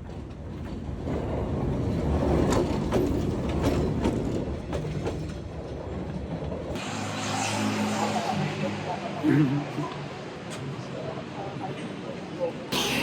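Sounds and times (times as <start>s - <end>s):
heavy low train rumble: 0.0s - 6.8s
train wheels clattering over rail joints: 0.0s - 6.8s.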